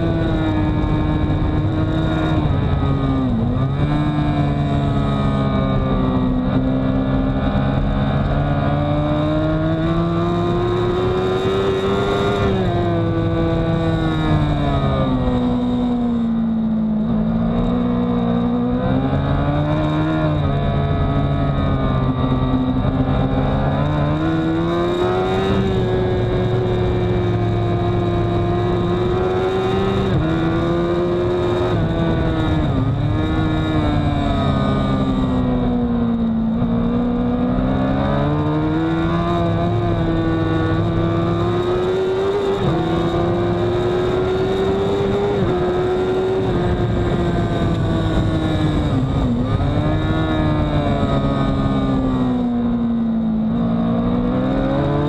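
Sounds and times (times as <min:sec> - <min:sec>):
motorcycle engine revving hard: 0:00.0 - 0:55.0.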